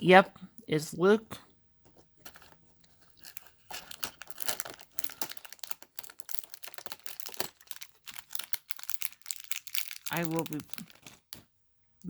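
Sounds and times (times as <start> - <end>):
plastic bag crinkling and tearing: 2.2 - 11.5.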